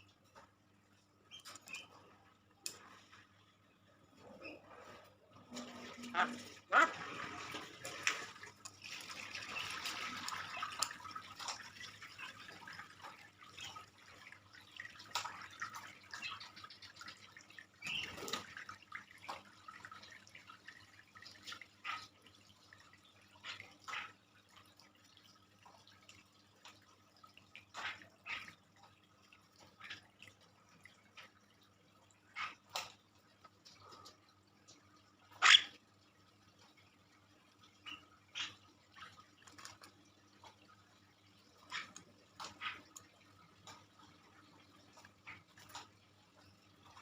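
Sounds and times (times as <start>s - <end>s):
bird clicks and calls: 1.3s - 2.0s, 17.8s - 18.4s.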